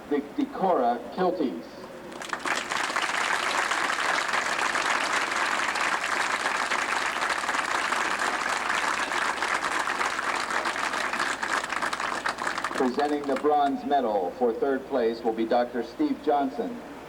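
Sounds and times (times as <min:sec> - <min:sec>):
crowd applauding and cheering: 0:02.1 - 0:13.6.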